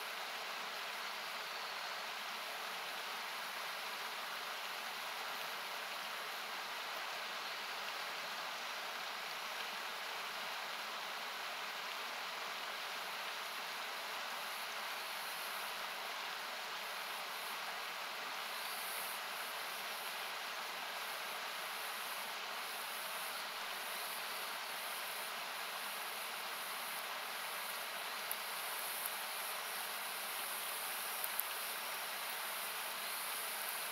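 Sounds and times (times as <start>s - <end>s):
river rushing: 0.1s - 33.9s
campfire pops: 31.2s - 31.6s.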